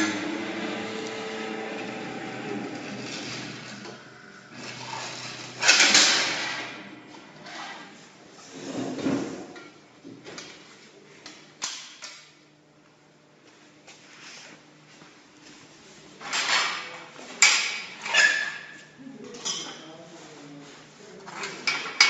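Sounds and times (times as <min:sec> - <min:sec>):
low surge: 0:00.0 - 0:07.1.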